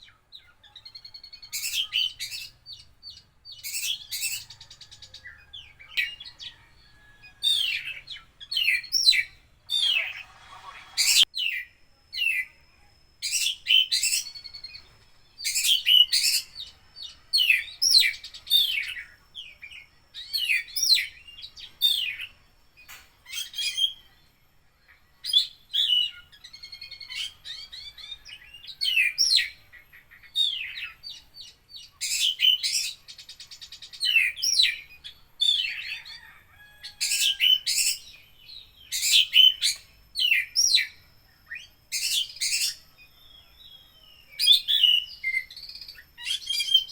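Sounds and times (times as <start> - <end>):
magpie-robin singing: 0.0 - 12.6, 13.2 - 46.9
fast buzzy bird trill: 3.6 - 11.6, 37.0 - 43.5, 44.2 - 46.9.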